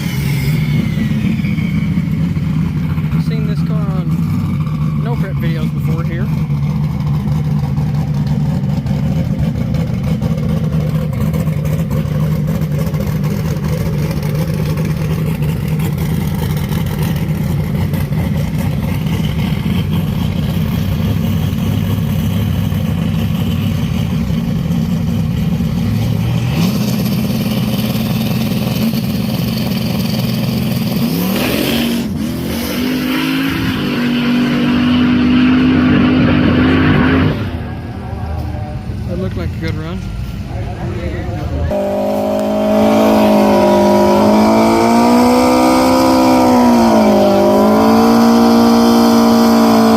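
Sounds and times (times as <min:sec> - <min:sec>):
drag racing car engine revving: 0:00.0 - 0:49.9.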